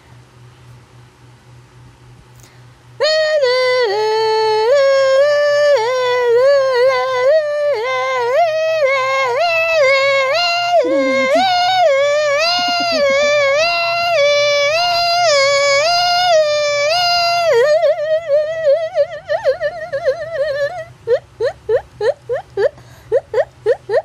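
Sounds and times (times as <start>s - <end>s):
high wordless voice-like tone: 10.8s - 11.7s.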